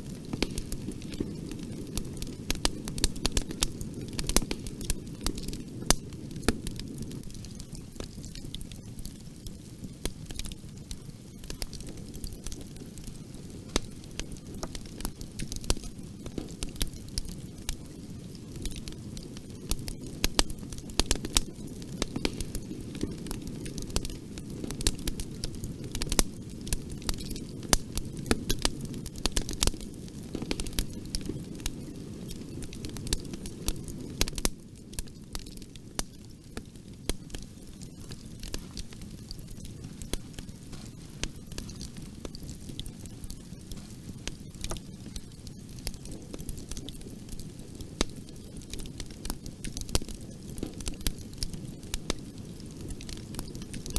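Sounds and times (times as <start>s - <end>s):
fire crackling: 0.0s - 53.9s.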